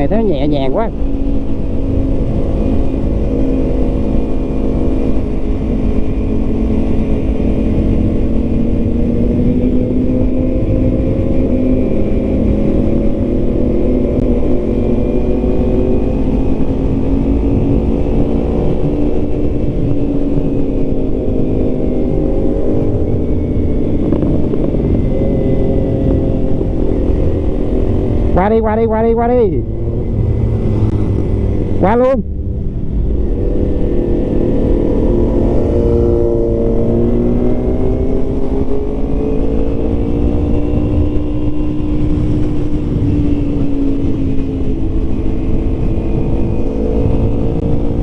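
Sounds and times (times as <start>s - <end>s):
motorcycle engine running: 0.0s - 48.0s
wind rumble on microphone: 0.0s - 48.0s.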